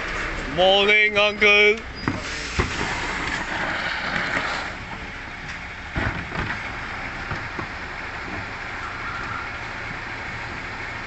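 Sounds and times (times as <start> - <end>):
garbage truck running: 0.0 - 11.0
hissing rush: 2.0 - 4.9.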